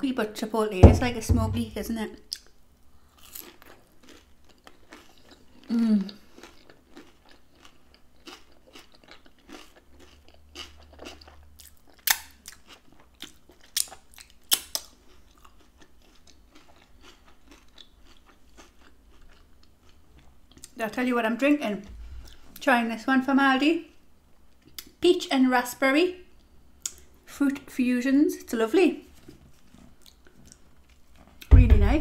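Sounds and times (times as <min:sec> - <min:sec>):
crunchy chewing: 0:02.3 - 0:20.8, 0:29.2 - 0:31.5.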